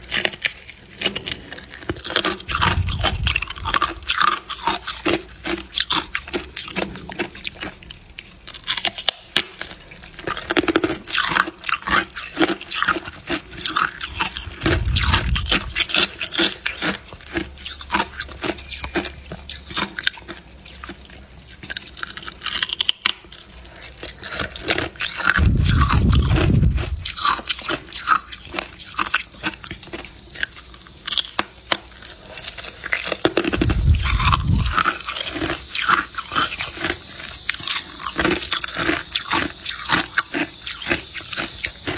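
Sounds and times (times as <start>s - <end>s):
person chewing ice crunchily: 0.0s - 41.9s
low rumbles: 2.2s - 5.1s, 13.9s - 16.2s, 25.3s - 27.7s, 33.5s - 35.0s.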